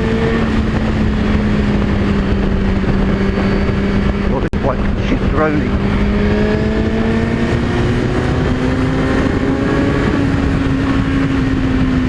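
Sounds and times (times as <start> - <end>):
motorcycle engine accelerating: 0.0 - 12.0
wind noise: 0.0 - 12.0.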